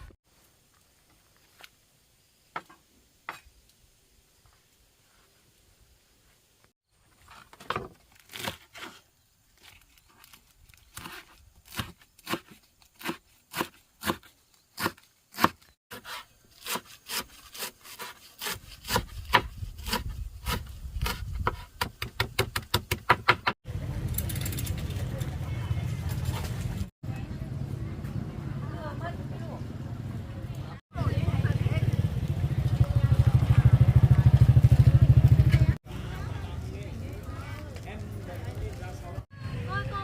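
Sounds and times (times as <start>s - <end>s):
chopping wood: 11.0s - 17.3s, 18.0s - 23.6s.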